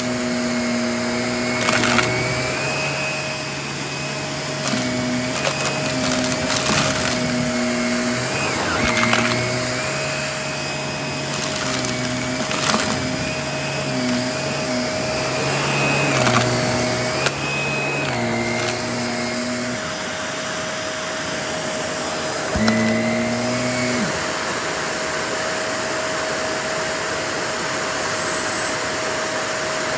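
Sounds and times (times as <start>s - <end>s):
vacuum cleaner running: 0.0s - 29.9s
cardboard pieces clicking and rattling: 1.6s - 2.6s, 4.6s - 9.9s, 11.3s - 19.7s, 22.6s - 23.2s.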